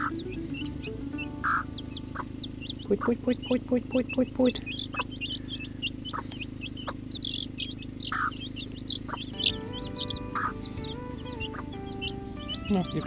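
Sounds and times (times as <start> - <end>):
soft background music: 0.0 - 3.1, 9.2 - 13.0
chicks peeping: 0.0 - 13.0
hen calling: 0.0 - 13.0.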